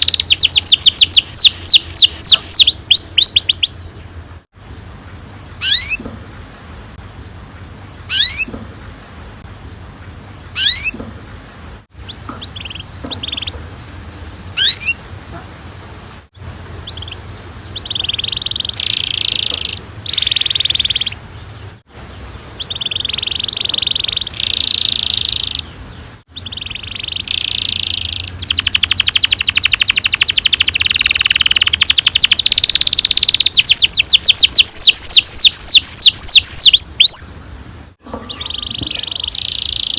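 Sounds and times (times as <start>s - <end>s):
canary singing: 0.0s - 4.1s, 5.6s - 6.1s, 8.1s - 8.6s, 10.5s - 11.0s, 12.0s - 13.6s, 14.5s - 15.2s, 16.7s - 37.3s, 38.1s - 39.9s.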